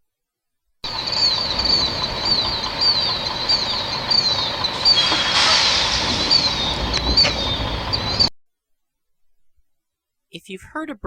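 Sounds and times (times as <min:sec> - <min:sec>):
bird giving high-pitched calls: 0:00.9 - 0:08.3
rush of noise: 0:00.9 - 0:08.3.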